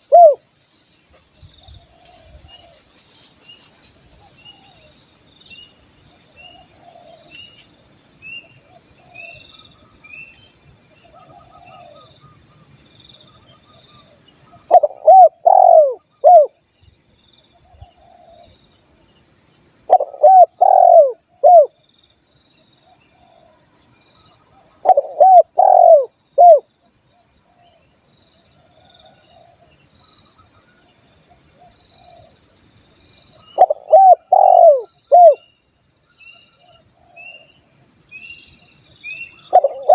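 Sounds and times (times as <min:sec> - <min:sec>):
dove cooing: 0:00.0 - 0:00.4, 0:06.5 - 0:07.3, 0:14.7 - 0:16.5, 0:19.9 - 0:21.8, 0:24.8 - 0:26.6, 0:33.6 - 0:35.4, 0:39.4 - 0:39.9
faint bird chirps: 0:00.0 - 0:39.9
insects chorus: 0:00.0 - 0:39.9.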